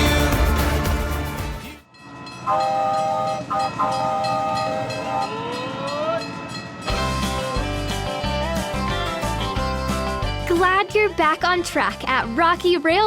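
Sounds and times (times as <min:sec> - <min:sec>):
chime train whistle: 0:01.9 - 0:07.7.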